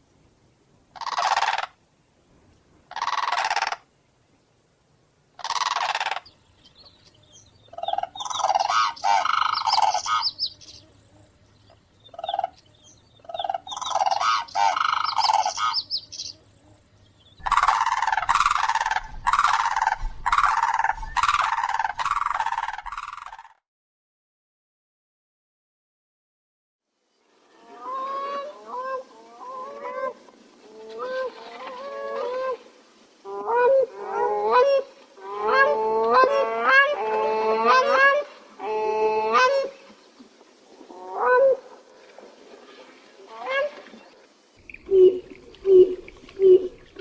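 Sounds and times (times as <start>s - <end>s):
cranes trumpeting calls: 1.0s - 1.8s, 2.9s - 3.8s, 5.4s - 6.3s, 7.7s - 10.4s, 13.2s - 15.9s, 17.4s - 23.6s, 33.2s - 39.9s, 40.9s - 41.6s, 44.6s - 47.0s.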